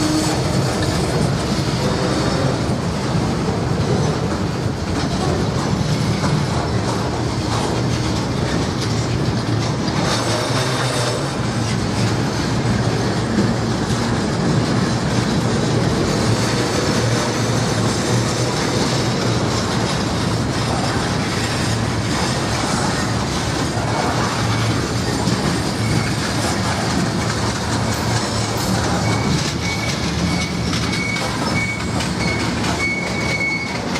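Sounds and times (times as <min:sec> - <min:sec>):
freight train wheels on rails: 0:00.0 - 0:33.9
wheels clacking: 0:00.0 - 0:33.9.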